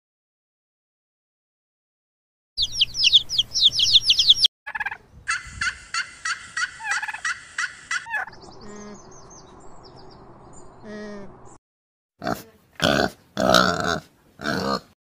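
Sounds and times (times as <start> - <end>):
turkey gobbling: 2.6 - 8.4
chicks peeping: 2.6 - 10.3.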